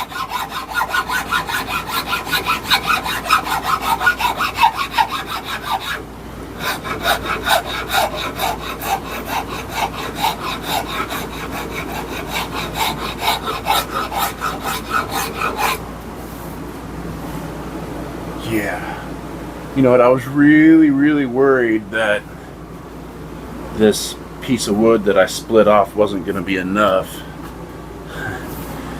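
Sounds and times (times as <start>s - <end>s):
hand file rasping on wood: 0.0s - 6.0s, 6.6s - 15.8s.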